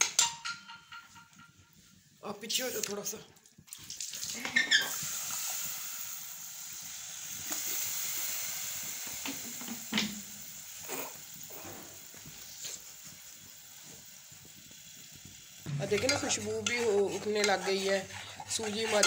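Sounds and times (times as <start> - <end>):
semolina sizzling in a pot: 0.0 - 19.0
spatula scraping: 15.7 - 19.0.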